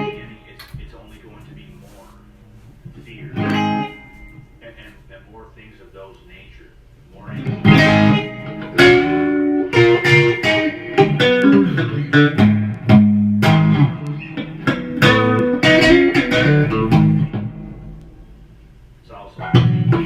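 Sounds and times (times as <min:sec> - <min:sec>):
guitar playing blues riff: 0:00.0 - 0:00.4, 0:03.2 - 0:04.3, 0:07.3 - 0:18.4, 0:19.4 - 0:20.0.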